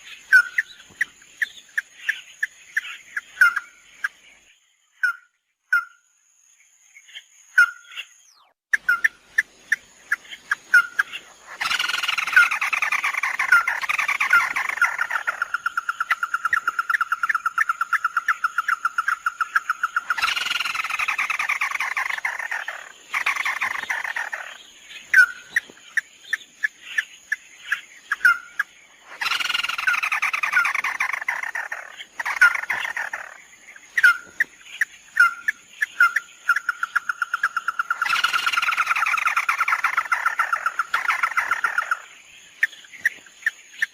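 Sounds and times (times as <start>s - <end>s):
bird call with fast trill: 10.7s - 24.5s, 28.1s - 33.4s, 35.2s - 42.0s.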